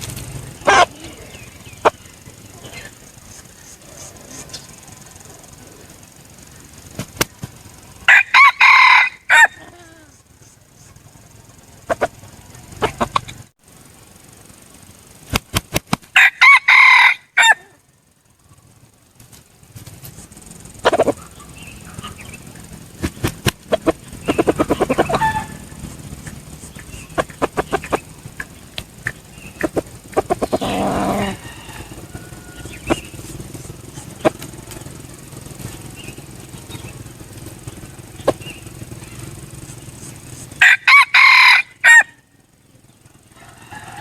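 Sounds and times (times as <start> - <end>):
rooster clucking: 0.0 - 13.5, 16.2 - 17.8, 20.7 - 42.2, 43.3 - 44.0
rooster crowing: 7.9 - 10.1, 16.2 - 17.9, 24.6 - 25.9, 29.6 - 34.9, 40.6 - 42.3, 43.3 - 44.0.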